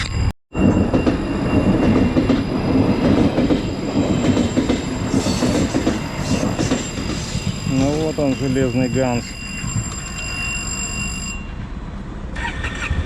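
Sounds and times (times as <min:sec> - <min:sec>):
train wheels on rails: 0:00.0 - 0:11.6.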